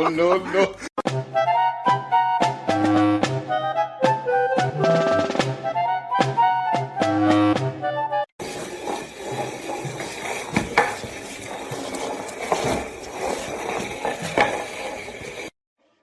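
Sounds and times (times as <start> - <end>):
room noise: 8.4 - 15.5.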